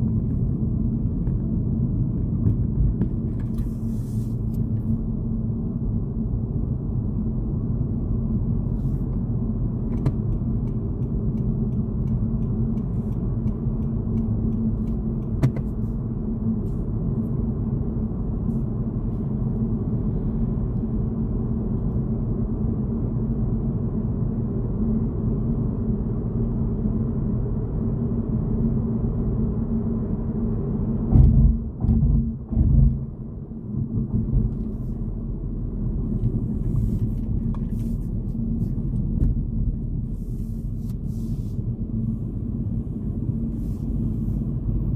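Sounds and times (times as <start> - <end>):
car road and engine rumble: 0.0 - 44.9
heavy low thumps: 31.1 - 34.6.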